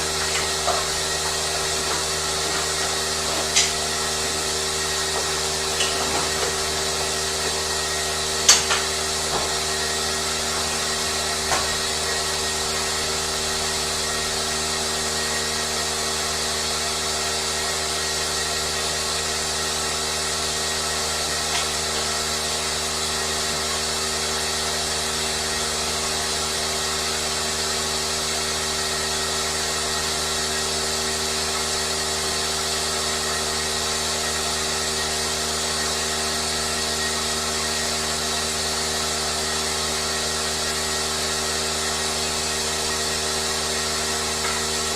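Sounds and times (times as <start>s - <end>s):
motor-driven machine whirring: 0.0s - 25.3s.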